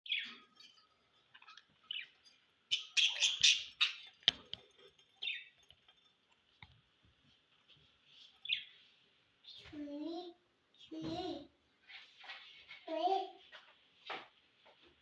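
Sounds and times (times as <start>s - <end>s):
budgerigars chirping: 2.7s - 4.3s.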